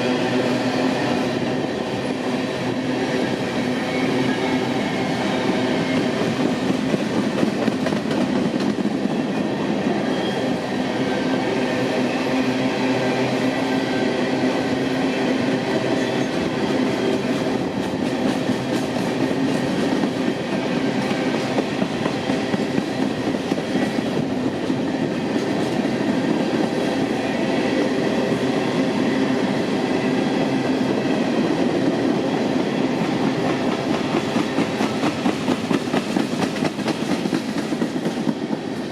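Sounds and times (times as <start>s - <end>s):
train wheels clicking over rail joints: 5.7s - 9.1s, 15.9s - 27.0s, 31.6s - 38.9s.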